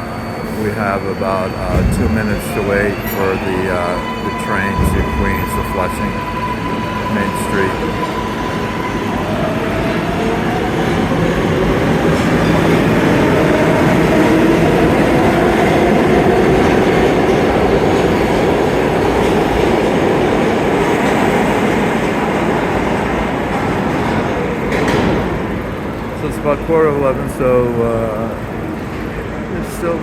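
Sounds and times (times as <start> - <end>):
subway train wheels rumbling: 0.0 - 30.0.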